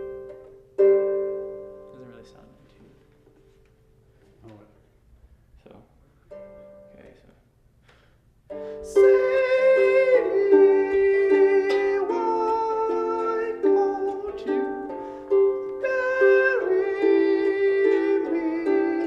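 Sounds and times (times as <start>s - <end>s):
plucked string chords ringing: 0.0s - 2.4s, 8.5s - 19.0s.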